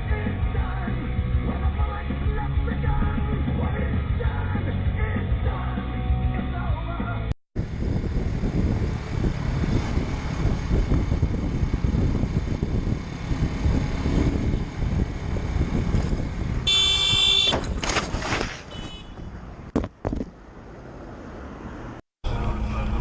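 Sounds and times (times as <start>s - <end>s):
car road and engine rumble: 7.6s - 23.0s
vehicle horn: 16.6s - 17.6s, 18.7s - 19.3s.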